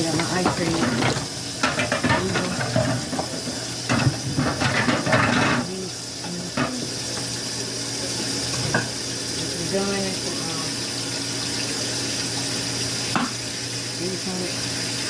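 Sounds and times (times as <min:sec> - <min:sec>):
food containers clattering: 0:00.0 - 0:05.7.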